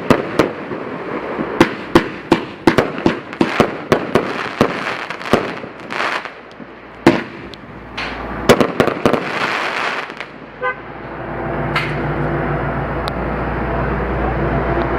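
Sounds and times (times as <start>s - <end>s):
fireworks bangs and crackling: 0.0s - 10.6s.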